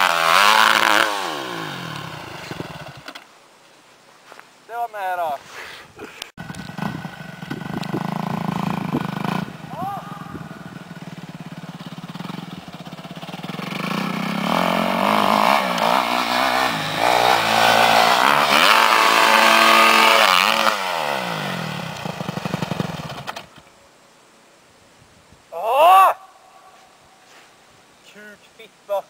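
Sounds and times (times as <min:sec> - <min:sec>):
dirt bike engine revving: 0:00.0 - 0:03.2, 0:06.4 - 0:23.5.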